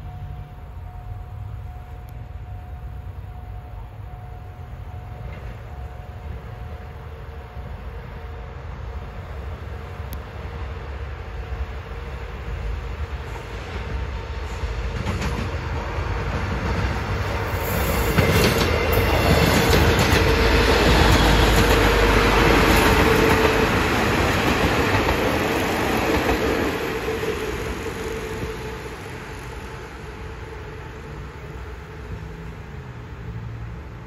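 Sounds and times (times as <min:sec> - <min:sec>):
passenger train passing: 0:00.0 - 0:34.0
wheels clicking over rail joints: 0:13.7 - 0:27.8.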